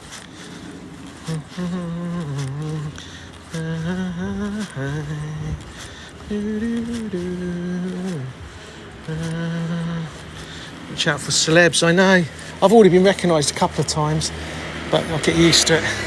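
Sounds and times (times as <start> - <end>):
man humming: 1.1 - 11.0.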